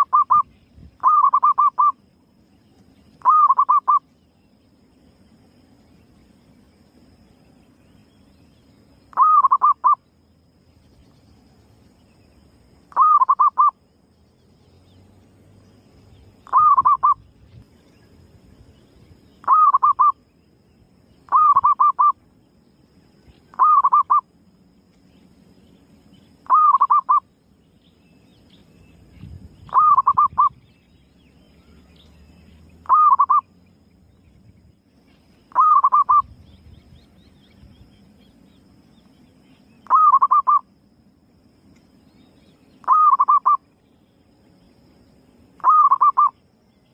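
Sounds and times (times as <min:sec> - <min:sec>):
dove cooing: 0:01.0 - 0:02.0, 0:03.2 - 0:04.0, 0:09.1 - 0:10.0, 0:12.9 - 0:13.7, 0:16.4 - 0:17.2, 0:19.4 - 0:20.1, 0:21.3 - 0:22.2, 0:23.5 - 0:24.2, 0:26.4 - 0:27.2, 0:29.7 - 0:30.6, 0:32.8 - 0:33.4, 0:35.5 - 0:36.3, 0:39.8 - 0:40.6, 0:42.8 - 0:43.6, 0:45.6 - 0:46.3.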